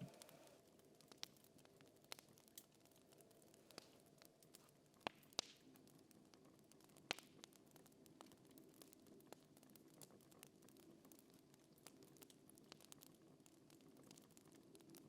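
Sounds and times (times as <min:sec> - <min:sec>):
low steady hiss: 0:00.0 - 0:10.0
fire crackling pops: 0:00.0 - 0:15.0.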